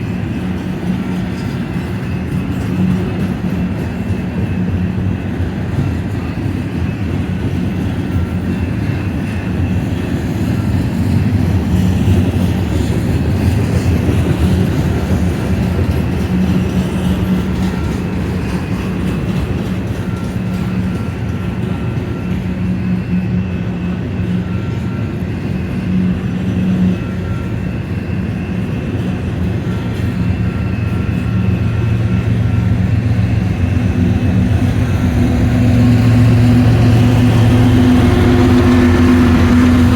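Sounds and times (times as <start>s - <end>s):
diesel locomotive engine: 0.0s - 39.9s
freight train cars rumbling: 0.0s - 39.9s.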